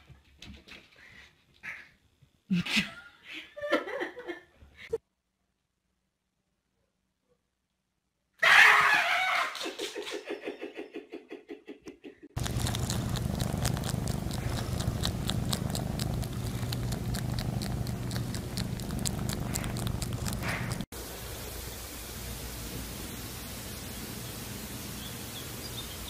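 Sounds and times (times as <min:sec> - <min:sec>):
low hum with rapid ticking: 0:12.4 - 0:20.9.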